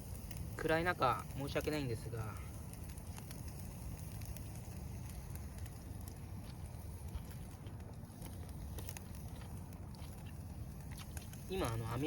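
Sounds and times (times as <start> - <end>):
campfire crackling: 0.0 - 12.0.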